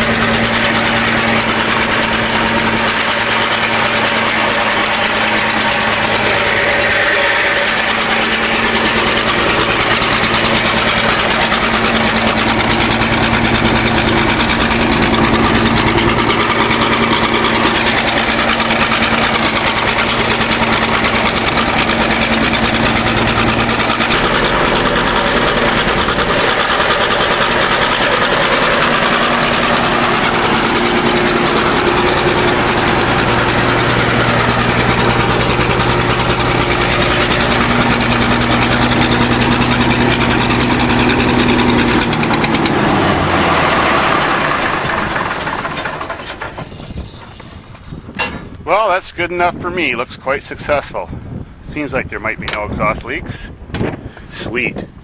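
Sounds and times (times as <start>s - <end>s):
dozer engine running: 0.0s - 55.0s.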